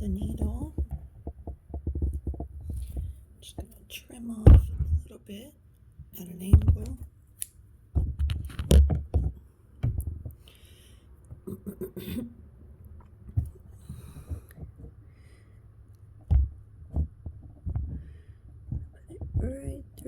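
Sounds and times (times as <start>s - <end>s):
soft knocks and clicks of handling: 8.0s - 10.4s.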